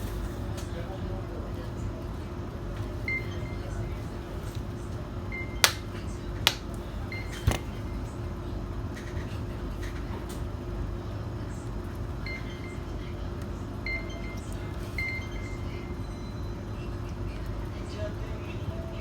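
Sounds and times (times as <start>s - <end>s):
steady background hum: 0.0s - 19.0s
tablet handling clicks: 5.6s - 5.8s.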